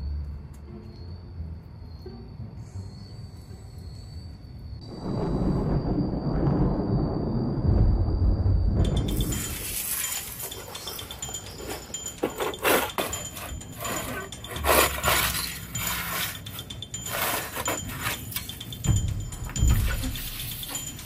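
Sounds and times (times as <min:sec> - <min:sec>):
bamboo tray scraping on stone steps: 0:10.1 - 0:18.3.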